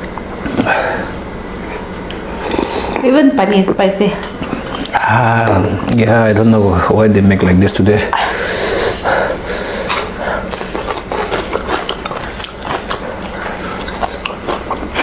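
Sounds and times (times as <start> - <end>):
crunchy chewing: 1.6 - 6.0, 9.8 - 15.0.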